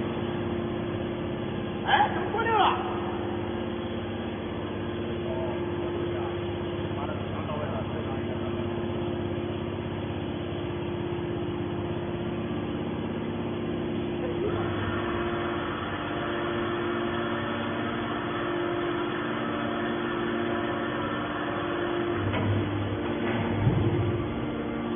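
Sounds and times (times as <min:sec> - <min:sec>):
scrap metal baler hum: 0:13.9 - 0:24.9.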